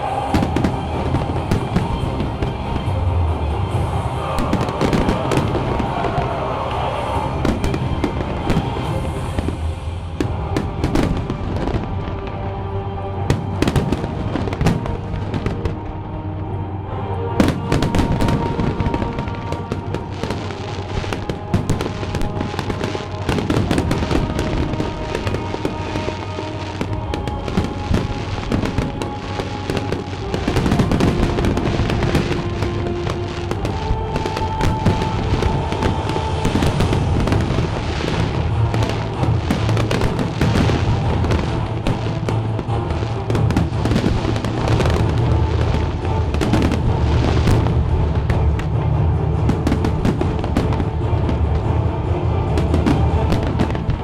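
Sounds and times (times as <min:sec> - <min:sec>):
fireworks bursting: 0:00.0 - 0:12.5, 0:13.1 - 0:16.0, 0:17.4 - 0:54.0
music playing: 0:00.0 - 0:54.0.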